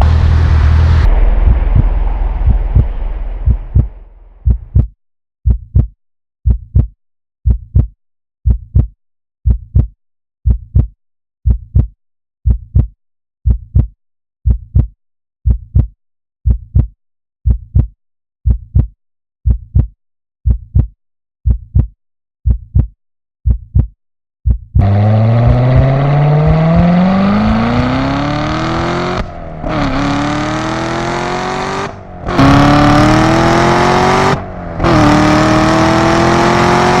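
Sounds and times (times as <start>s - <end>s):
heartbeat thumps: 1.0s - 30.2s.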